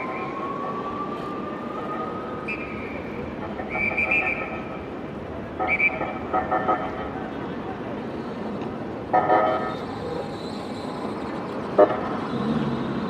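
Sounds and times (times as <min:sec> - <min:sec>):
police siren held tone: 0:00.0 - 0:04.7
street noise: 0:00.0 - 0:13.0.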